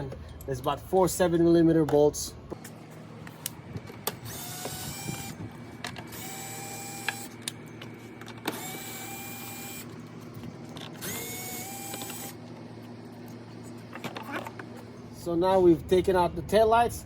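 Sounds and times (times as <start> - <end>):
power driver whirring: 3.4 - 12.8.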